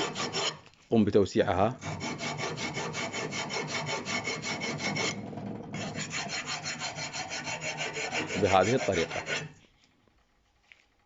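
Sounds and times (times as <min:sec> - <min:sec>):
hand file rasping on brake pad: 0:00.0 - 0:00.6, 0:01.8 - 0:05.2, 0:05.8 - 0:09.6.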